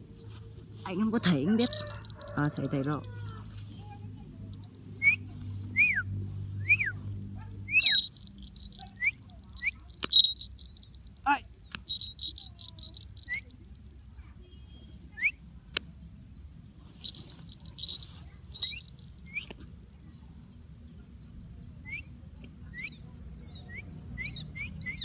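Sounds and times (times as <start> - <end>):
bird chirping: 3.0 - 19.6, 21.8 - 25.0.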